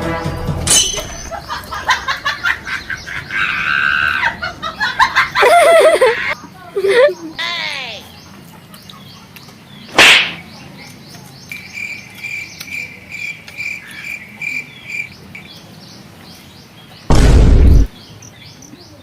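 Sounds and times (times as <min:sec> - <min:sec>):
birds chirping: 0:00.8 - 0:19.0
loud bump: 0:17.1 - 0:17.9.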